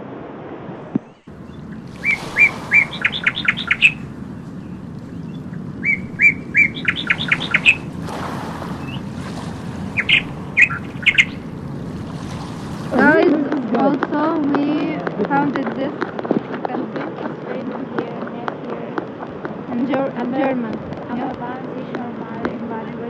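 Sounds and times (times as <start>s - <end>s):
steady rushing background: 0.0s - 13.6s
songbird chirping and trilling: 1.0s - 13.2s.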